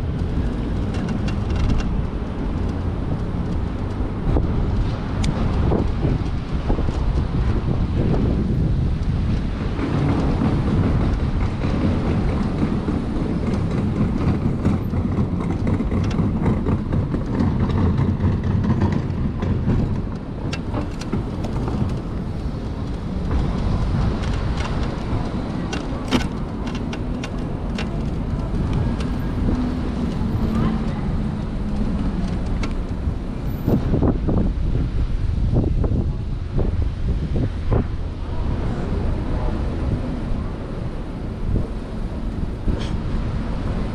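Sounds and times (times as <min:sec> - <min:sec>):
road noise: 0:00.0 - 0:43.9
wind rush: 0:00.0 - 0:43.9
sharp knocks and rattles: 0:09.2 - 0:30.9.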